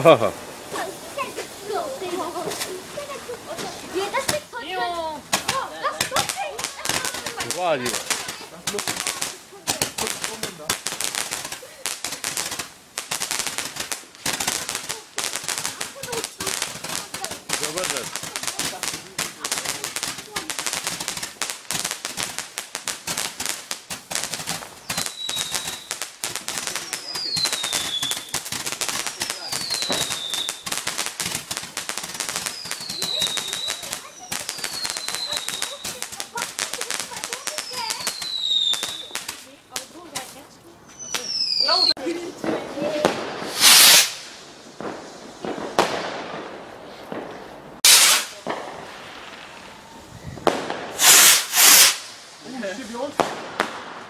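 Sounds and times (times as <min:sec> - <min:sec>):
fireworks crackling pops: 0:00.0 - 0:54.0
falling firework whistles: 0:19.6 - 0:39.4, 0:40.8 - 0:52.4.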